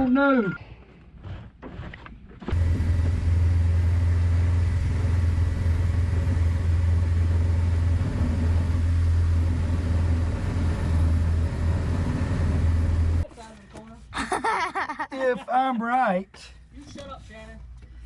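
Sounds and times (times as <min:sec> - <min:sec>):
low machine hum: 0:02.5 - 0:13.3.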